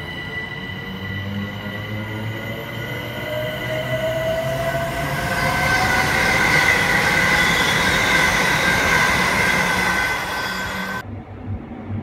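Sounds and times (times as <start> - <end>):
high whining train tones: 0.0 - 11.1
train wheels rumbling on rails: 0.0 - 11.1.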